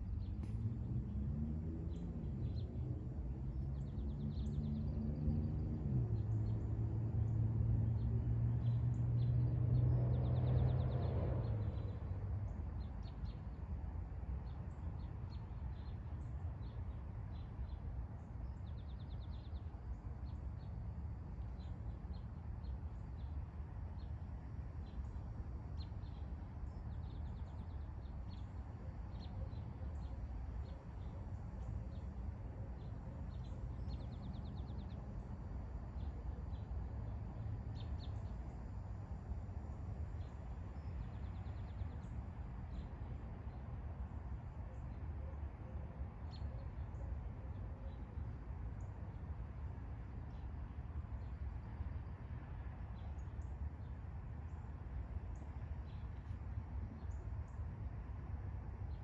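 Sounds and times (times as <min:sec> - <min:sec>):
low outdoor rumble: 0:00.0 - 0:59.0
small birds chirping: 0:24.8 - 0:43.7.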